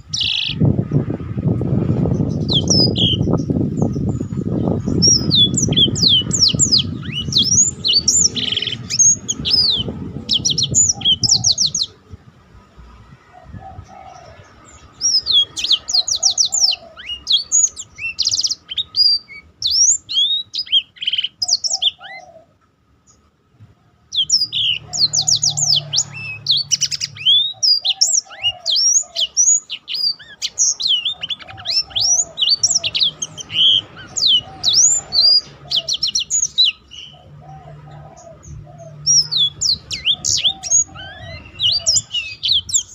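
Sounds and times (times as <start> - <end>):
canary singing trills: 0.0 - 12.2, 13.0 - 23.3, 24.0 - 42.9
low rumble: 0.0 - 15.3.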